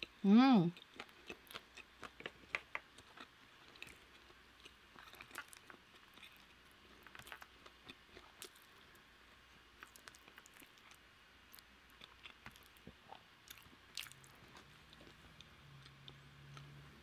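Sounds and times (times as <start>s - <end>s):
chewing clicks and smacks: 0.8s - 8.7s, 11.6s - 16.7s.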